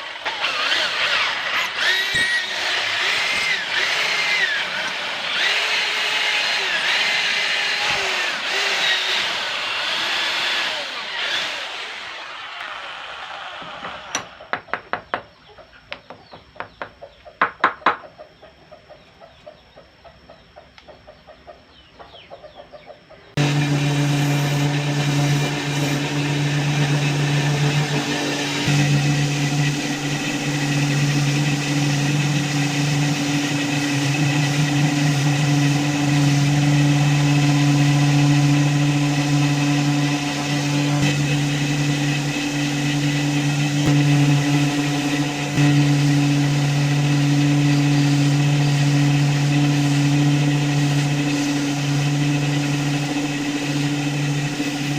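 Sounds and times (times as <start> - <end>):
electric motor humming: 0.0 - 14.5, 23.4 - 54.9.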